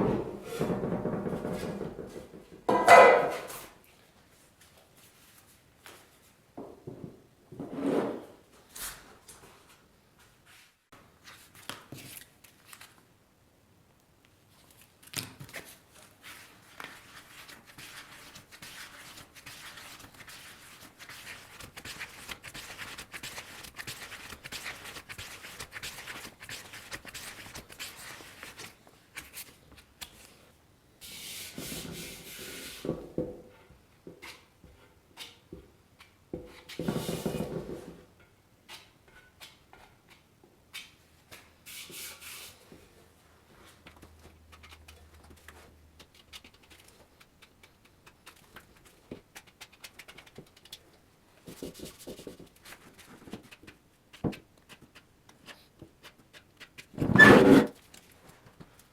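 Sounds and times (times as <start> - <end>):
rubbing and scraping on a surface: 15.6 - 30.3, 51.4 - 58.0.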